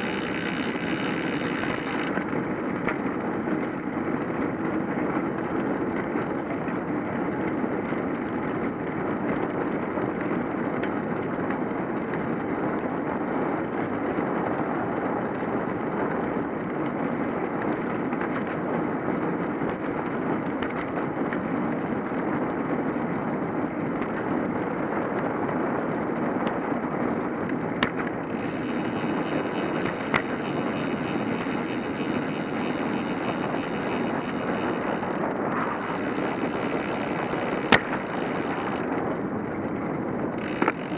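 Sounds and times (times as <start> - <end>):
tyres rolling on pavement: 0.0 - 40.9
wind on microphone: 0.0 - 40.9
sharp clicks: 28.3 - 38.9.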